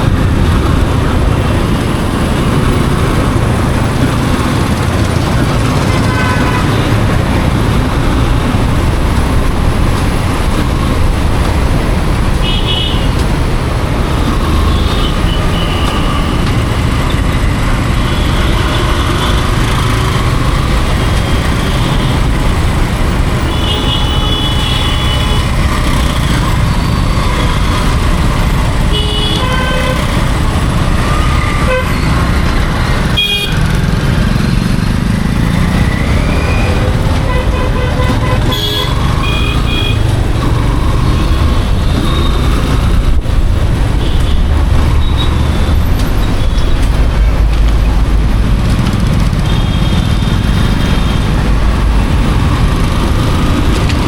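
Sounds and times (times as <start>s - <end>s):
motorcycle road and wind rumble: 0.0s - 54.0s
vehicle horns honking: 5.8s - 7.2s, 12.4s - 13.2s, 23.4s - 26.2s, 28.8s - 30.3s, 31.1s - 32.2s, 33.0s - 33.8s, 36.5s - 40.2s.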